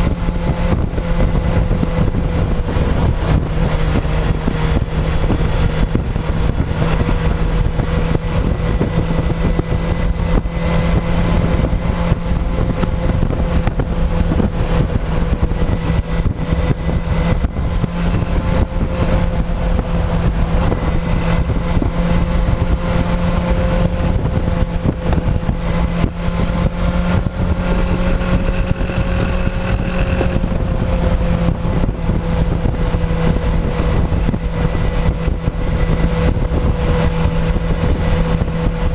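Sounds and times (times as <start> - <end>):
motorcycle engine cruising: 0.0 - 38.9
wind and road rumble: 0.0 - 38.9.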